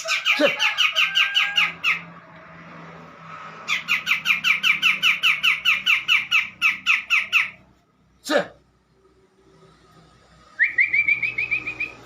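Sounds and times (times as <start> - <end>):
bird chattering sharp notes: 0.0 - 2.1, 3.7 - 7.6.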